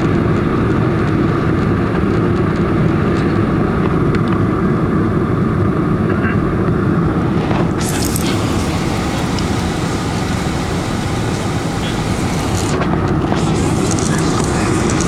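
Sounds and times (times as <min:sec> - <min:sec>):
jet engines roaring: 0:00.0 - 0:15.0
loud hissing rush: 0:06.8 - 0:15.0.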